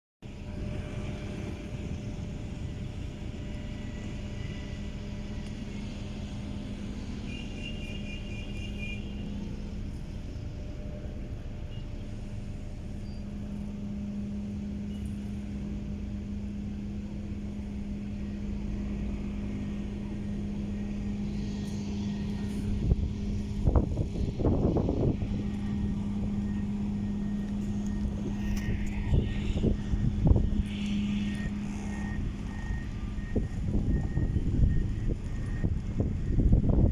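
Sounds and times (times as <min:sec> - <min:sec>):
quad bike engines running: 0:12.1 - 0:36.9.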